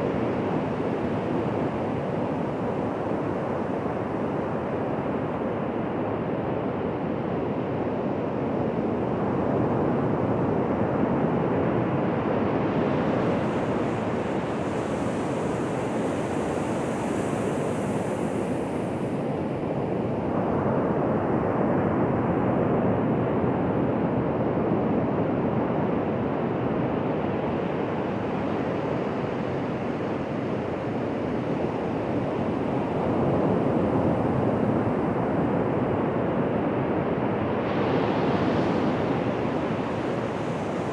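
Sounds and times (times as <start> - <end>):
waves breaking on a beach: 8.7 - 20.7, 26.1 - 40.9.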